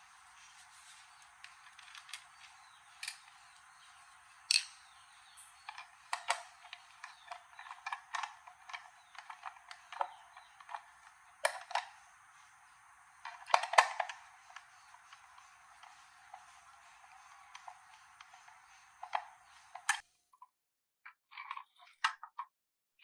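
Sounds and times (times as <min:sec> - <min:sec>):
hard objects clicking and knocking: 0:04.5 - 0:12.0.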